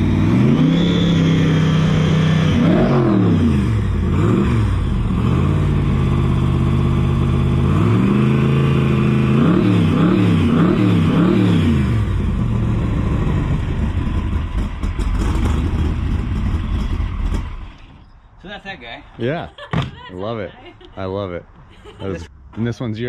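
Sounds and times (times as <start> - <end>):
engine idling and revving: 0.0 - 18.1.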